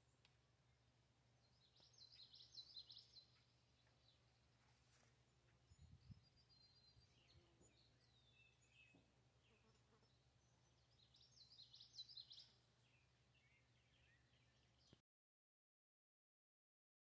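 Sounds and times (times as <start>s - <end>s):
faint bird chirps: 1.4s - 4.6s, 5.6s - 15.0s.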